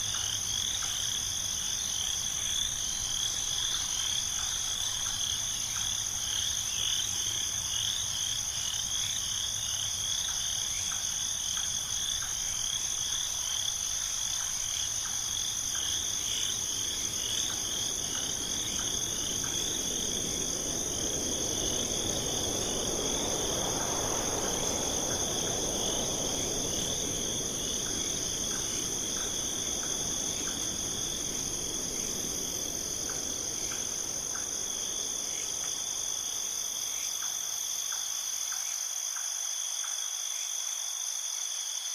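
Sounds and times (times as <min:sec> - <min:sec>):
crickets and frogs trilling: 0:00.0 - 0:41.9
soft rushing noise: 0:15.0 - 0:36.8.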